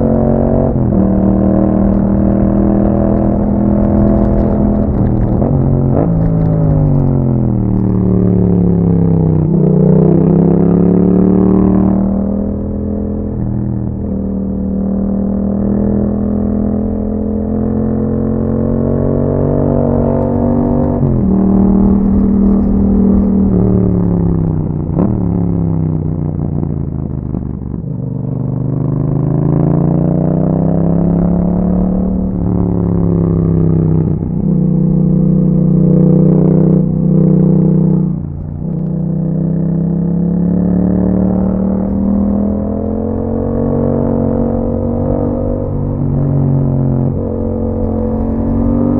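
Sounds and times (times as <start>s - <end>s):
motorcycle engine cruising: 0.0s - 48.9s.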